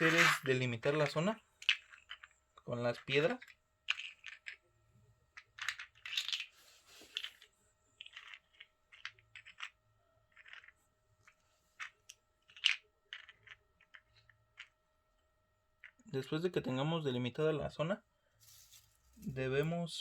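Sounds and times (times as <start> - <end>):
tokens clicking on a tabletop: 0.0 - 0.5, 7.1 - 10.8, 11.8 - 14.7.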